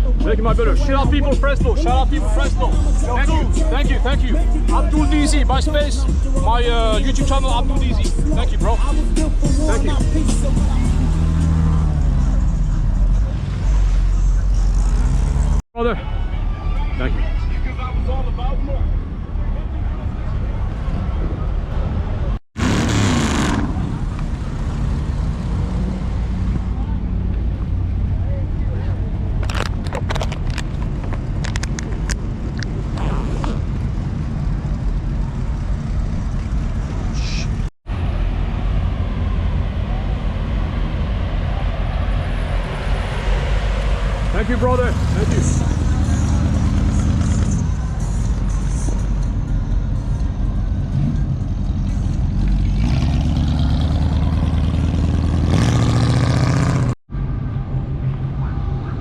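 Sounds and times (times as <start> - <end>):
car engine revving: 0.8 - 15.6, 22.6 - 27.0, 38.0 - 48.1, 52.4 - 57.0.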